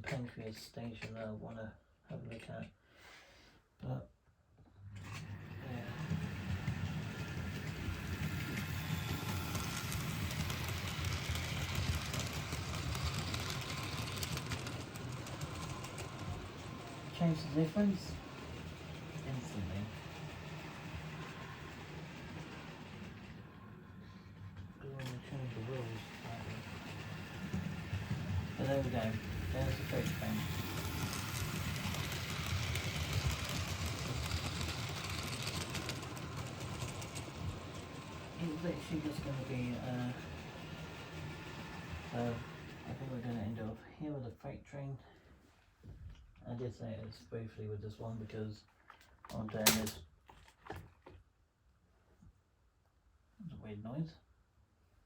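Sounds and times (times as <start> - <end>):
model train rumble: 5.0 - 43.8
wheels clicking over rail joints: 5.2 - 23.8, 24.4 - 43.7.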